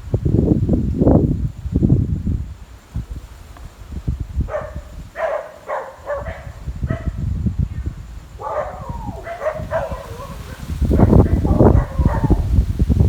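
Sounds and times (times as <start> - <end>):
dog barking: 4.5 - 7.2, 8.4 - 12.6.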